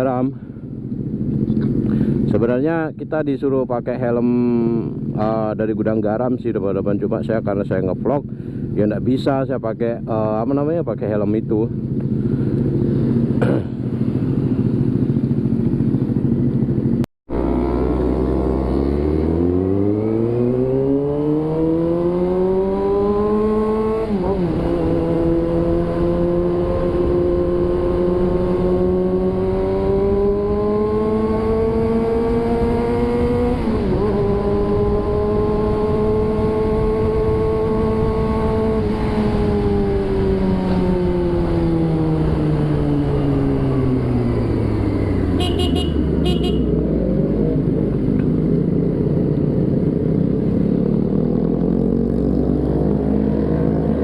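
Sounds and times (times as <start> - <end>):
motorcycle engine revving: 11.7 - 54.0.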